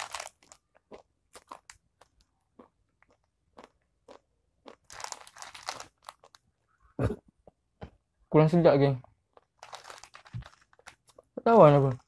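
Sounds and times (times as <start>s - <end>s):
crunchy snack being chewed: 0.0s - 6.4s, 9.3s - 11.3s.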